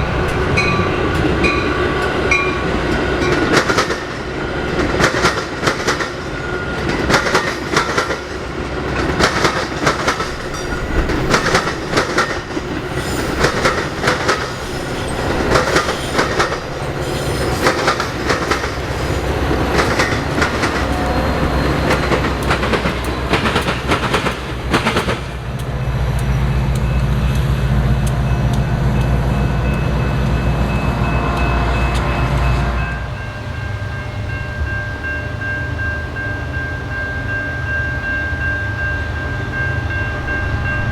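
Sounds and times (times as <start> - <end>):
train wheels clattering: 0.0 - 30.8
diesel locomotive rumble: 0.0 - 40.9.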